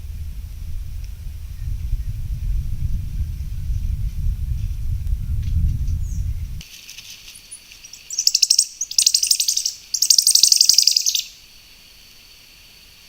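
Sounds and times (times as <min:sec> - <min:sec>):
bird chattering trills: 0:07.8 - 0:11.4.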